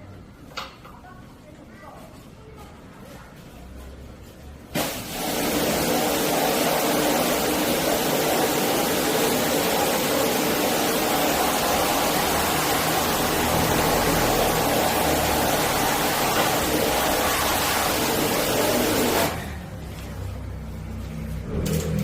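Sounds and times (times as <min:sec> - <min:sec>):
high-pressure water spray hissing: 0:04.8 - 0:19.4.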